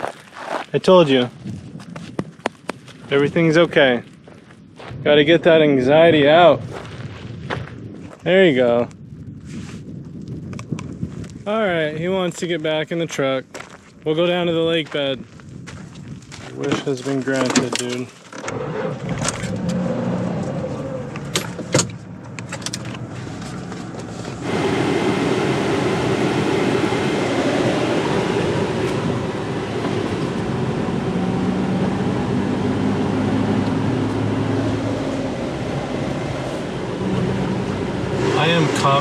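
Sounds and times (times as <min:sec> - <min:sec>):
pickup truck engine: 0:18.4 - 0:39.0
sharp clicks and knocks: 0:21.2 - 0:23.1.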